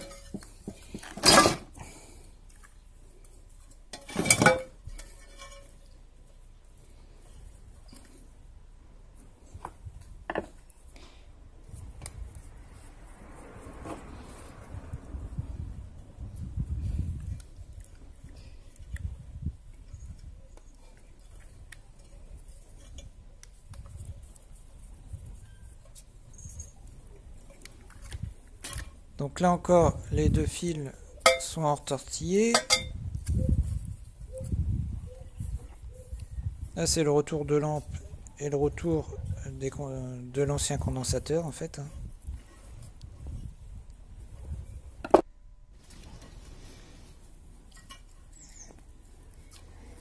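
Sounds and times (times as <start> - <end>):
metal tools clattering: 0.0 - 1.7, 3.9 - 5.8, 32.5 - 32.9.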